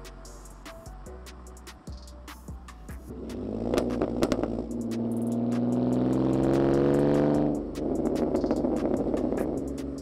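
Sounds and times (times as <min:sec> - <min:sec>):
car engine accelerating: 0:03.1 - 0:10.0.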